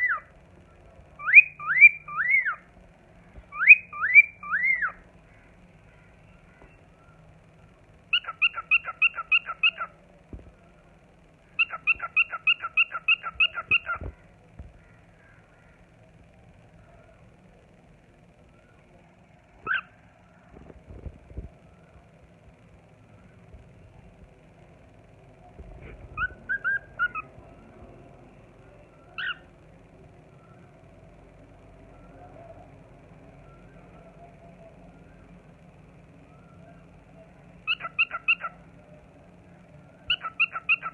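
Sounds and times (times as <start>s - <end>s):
low background hum: 0.0s - 40.9s
cockatiel whistling: 1.2s - 2.6s, 3.5s - 5.0s, 8.1s - 9.9s, 11.6s - 14.1s, 26.2s - 27.3s, 29.2s - 29.4s, 37.7s - 38.5s, 40.1s - 40.9s.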